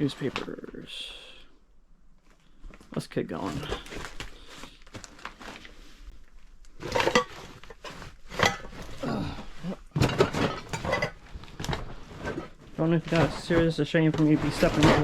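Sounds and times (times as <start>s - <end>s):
junk clinking underfoot: 4.9s - 15.0s.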